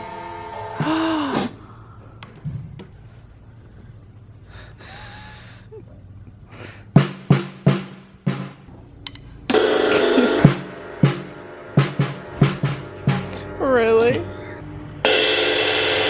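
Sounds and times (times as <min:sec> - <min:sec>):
drum kit burst: 0:07.0 - 0:16.0
drum strikes with low ringing tone: 0:07.0 - 0:16.0.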